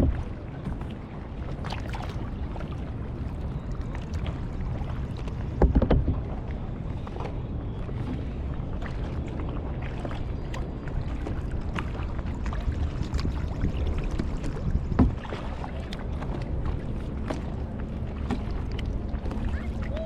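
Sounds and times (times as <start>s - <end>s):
paddle knocking on hull: 0.0s - 2.8s, 5.3s - 6.4s, 11.2s - 20.0s
paddle splashing in water: 0.0s - 20.0s
water and wind rumble: 0.0s - 20.0s.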